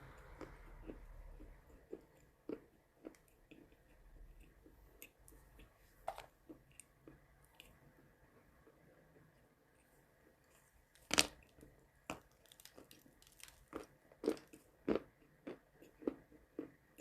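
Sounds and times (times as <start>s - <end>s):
person chewing chalk: 0.2s - 5.8s, 12.1s - 17.0s.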